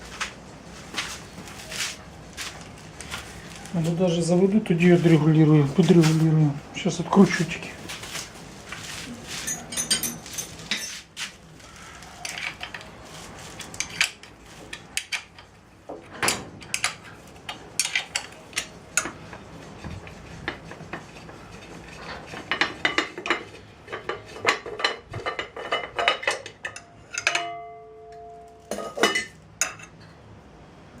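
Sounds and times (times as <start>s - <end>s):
hand tools clinking on metal: 9.4s - 11.0s.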